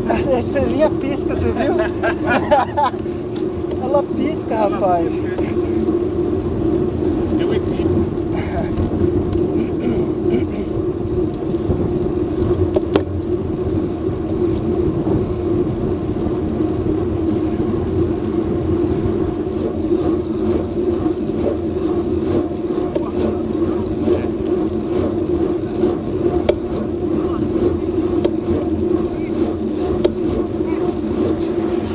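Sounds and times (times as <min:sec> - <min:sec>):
bicycle tyres rolling on pavement: 0:00.0 - 0:31.9
wind buffeting microphone: 0:00.0 - 0:31.9.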